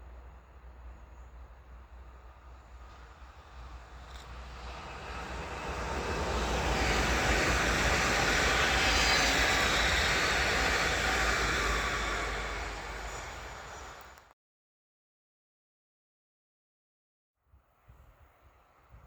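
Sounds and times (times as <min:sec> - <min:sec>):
train passing at speed: 0:00.0 - 0:14.3.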